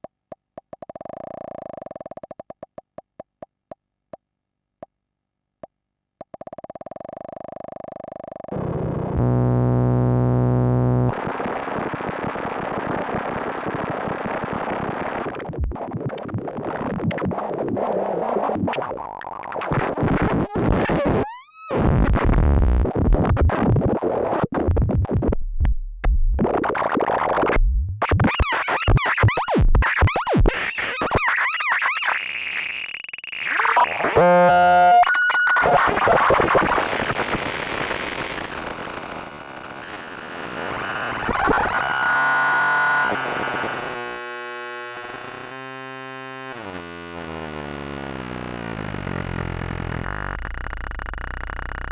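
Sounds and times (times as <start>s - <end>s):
synthesizer buzzy drone: 8.6s - 12.8s, 33.5s - 51.9s
distorted noisy synth textures: 33.3s - 47.6s
choppy stuttering synth sound: 33.4s - 38.9s
synth rising pitch sweeps: 34.1s - 36.1s
steady high synth tone: 34.2s - 36.1s.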